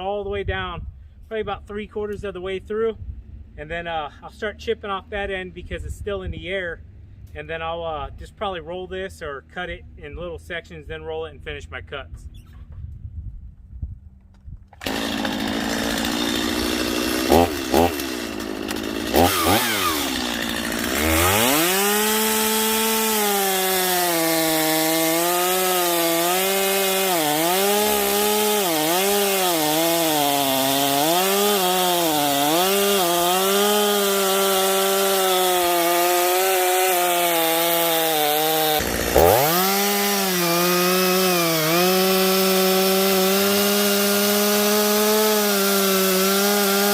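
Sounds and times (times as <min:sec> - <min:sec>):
chainsaw cutting wood: 0:14.7 - 0:46.9.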